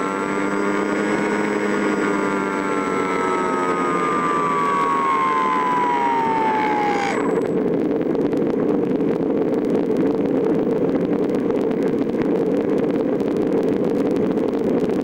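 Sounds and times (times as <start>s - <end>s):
motor whine falling in pitch: 0.0s - 9.0s
steady rushing noise: 0.0s - 15.0s.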